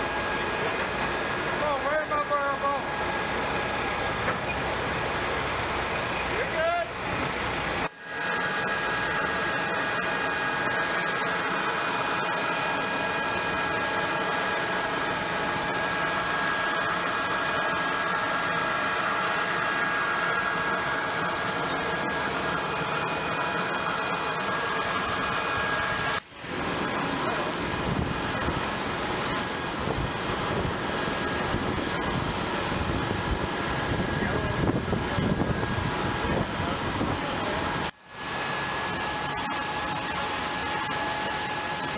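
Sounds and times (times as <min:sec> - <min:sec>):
aircraft turbine engine whine: 0:00.0 - 0:41.9.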